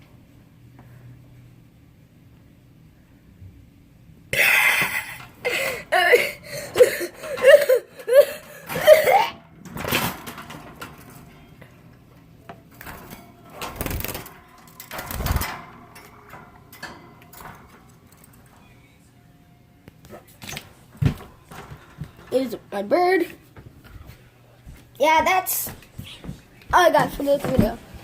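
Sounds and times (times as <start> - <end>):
person making wavering vocal sounds: 4.4 - 8.5
knocks and bumps: 25.7 - 27.9.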